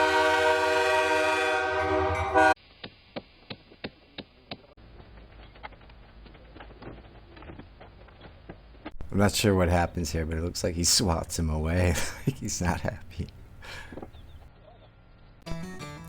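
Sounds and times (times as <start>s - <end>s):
locomotive air horn chord: 0.0s - 2.6s.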